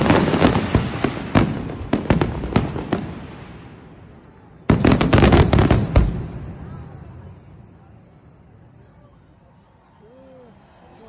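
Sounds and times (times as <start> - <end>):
fireworks banging: 0.0 - 6.7.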